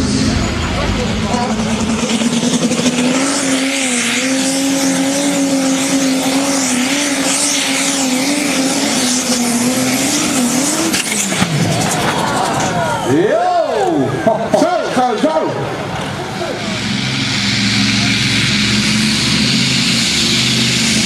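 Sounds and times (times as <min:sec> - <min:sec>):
tractor engine running under load: 0:15.7 - 0:21.0
loud hiss: 0:16.4 - 0:21.0.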